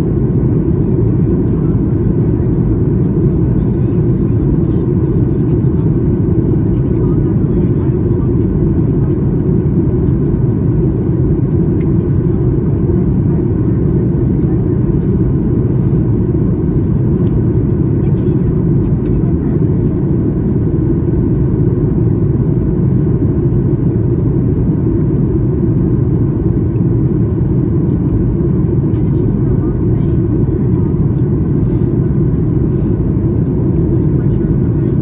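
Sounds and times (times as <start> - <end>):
airliner cabin noise: 0.0 - 35.0.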